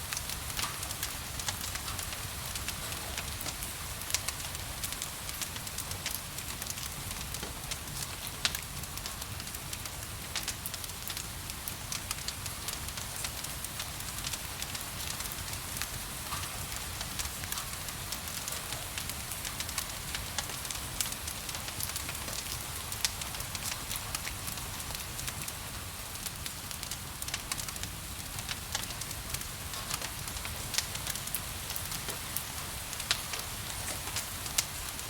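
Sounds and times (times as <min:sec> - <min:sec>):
wood fire crackling and popping: 0:00.0 - 0:35.0.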